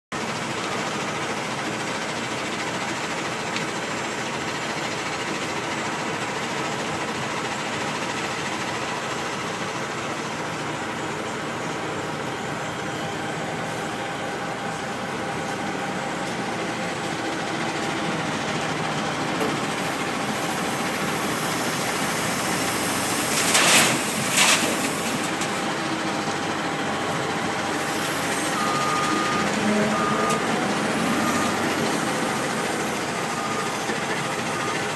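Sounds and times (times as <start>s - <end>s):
dump truck engine running: 0.2s - 34.9s
reversing beeper: 26.7s - 34.9s.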